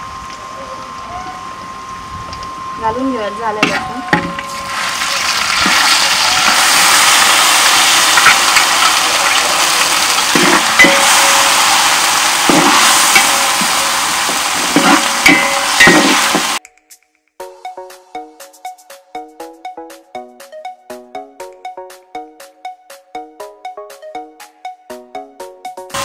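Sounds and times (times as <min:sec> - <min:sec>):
paste sizzling in hot oil: 0:04.5 - 0:16.6.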